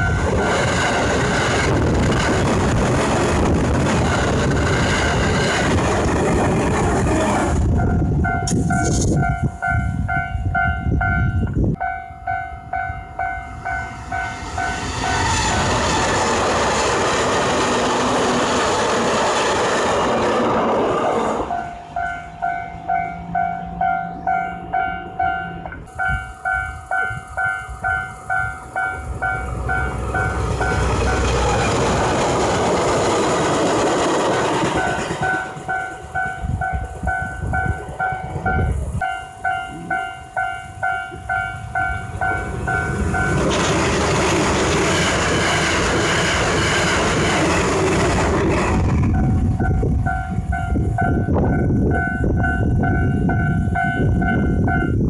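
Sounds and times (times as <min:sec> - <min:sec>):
passing train rushing: 0:00.0 - 0:55.0
level crossing alarm bell ringing: 0:07.8 - 0:15.2, 0:21.5 - 0:31.3, 0:34.8 - 0:43.4, 0:49.2 - 0:55.0.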